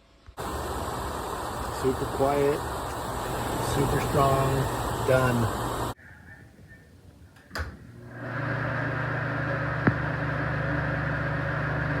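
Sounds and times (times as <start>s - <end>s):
exhaust fan humming: 0.4s - 6.0s.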